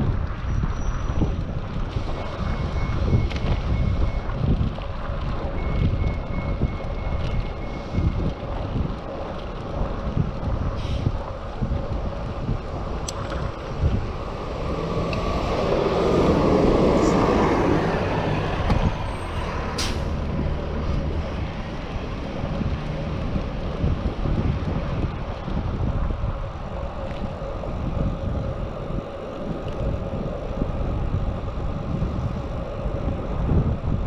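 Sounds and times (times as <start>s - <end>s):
wind buffeting microphone: 0.0s - 34.0s
motor vehicle passing: 12.2s - 24.9s.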